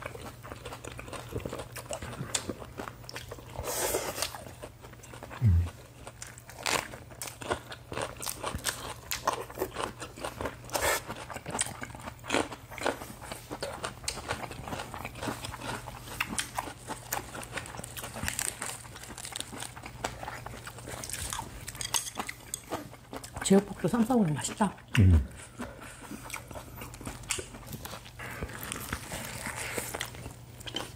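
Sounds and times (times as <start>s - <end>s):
crisp crunches of chewing: 0.0s - 23.6s, 25.4s - 30.9s
wet mouth sounds: 5.3s - 5.8s, 24.9s - 25.5s.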